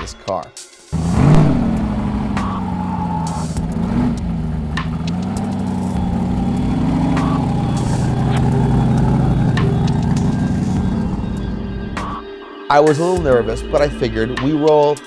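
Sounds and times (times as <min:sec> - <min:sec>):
car engine revving under load: 0:00.9 - 0:12.2.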